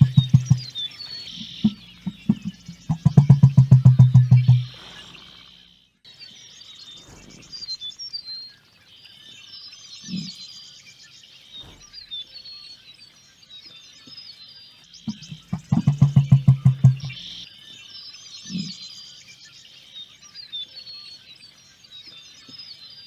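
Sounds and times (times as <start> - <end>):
low pulsing sound: 0.0 - 5.8, 14.9 - 17.4
small birds chirping and trilling: 0.0 - 23.0.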